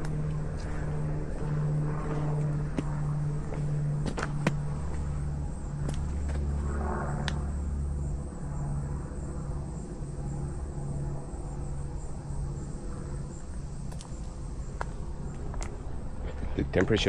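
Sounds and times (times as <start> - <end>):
passing vehicle rumble: 0.0 - 17.0
insect chirring: 4.1 - 16.3.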